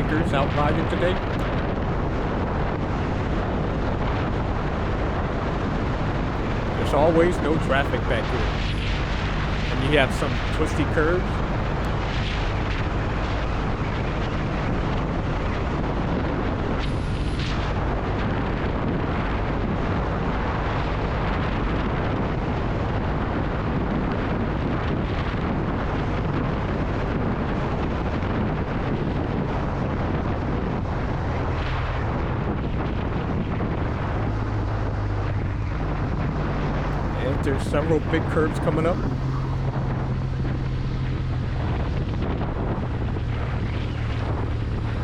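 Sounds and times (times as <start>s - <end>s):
wind rushing over microphone: 0.0s - 45.0s.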